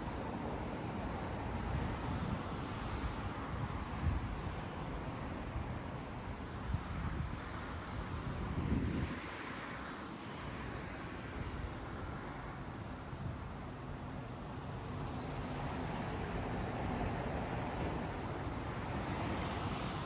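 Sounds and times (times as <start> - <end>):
wind rumbling on microphone: 1.4 - 9.5.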